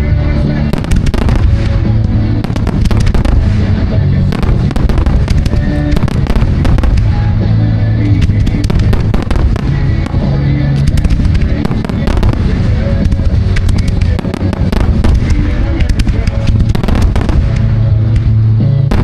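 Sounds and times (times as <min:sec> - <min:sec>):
fireworks bangs and crackles: 0:00.0 - 0:19.0
music playing: 0:00.0 - 0:19.0.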